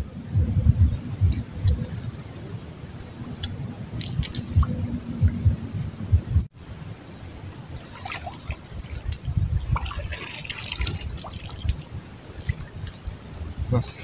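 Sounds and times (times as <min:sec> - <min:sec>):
low thumps: 0:00.0 - 0:06.5
water splashing and trickling: 0:01.0 - 0:05.6, 0:06.5 - 0:14.0.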